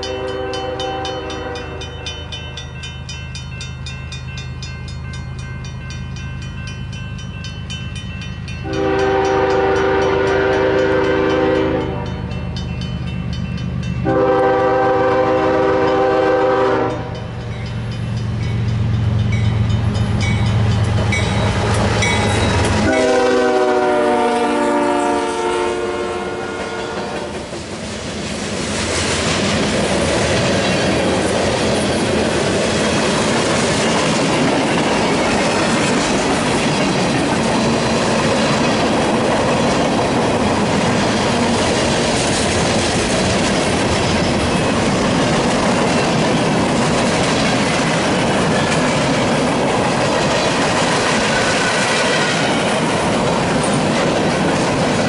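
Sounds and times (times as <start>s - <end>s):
train horn chord: 0.0s - 2.3s, 8.6s - 12.6s, 14.0s - 17.3s, 22.0s - 27.4s
diesel locomotive engine running: 0.0s - 55.0s
wheels clacking over rail joints: 27.0s - 55.0s.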